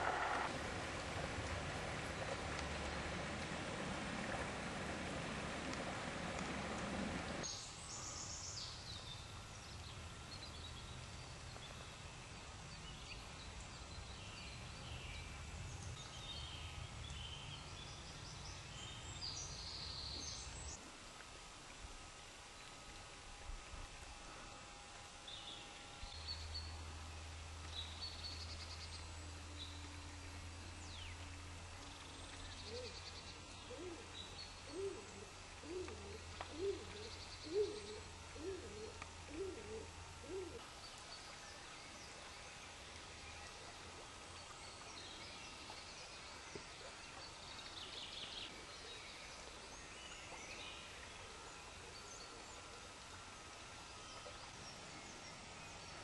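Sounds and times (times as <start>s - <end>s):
bird low hoots: 0.0s - 0.5s, 32.6s - 40.7s
low steady hum: 0.0s - 56.0s.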